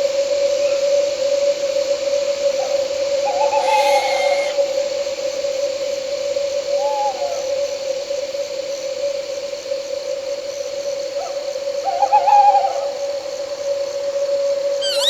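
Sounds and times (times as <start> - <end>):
night insects droning: 0.0 - 15.0
owl hooting: 3.2 - 4.8, 14.8 - 15.0.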